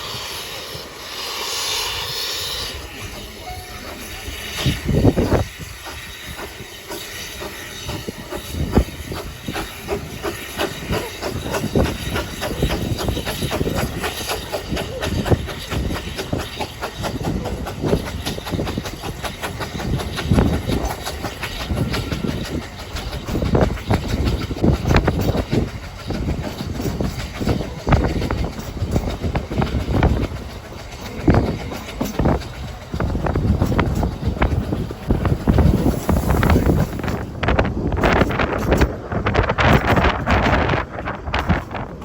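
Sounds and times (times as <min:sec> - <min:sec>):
train rumble: 0:00.0 - 0:42.0
wheels clattering over rail joints: 0:02.9 - 0:42.0.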